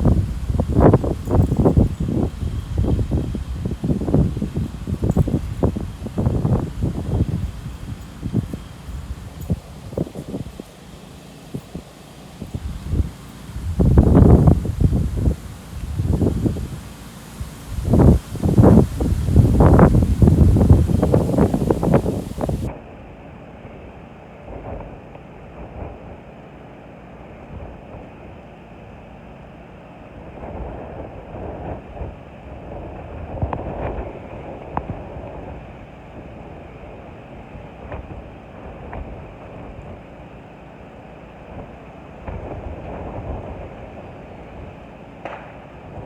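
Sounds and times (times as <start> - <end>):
gusty wind on microphone: 0.0 - 10.6, 11.5 - 22.7, 30.2 - 37.0, 41.5 - 44.8.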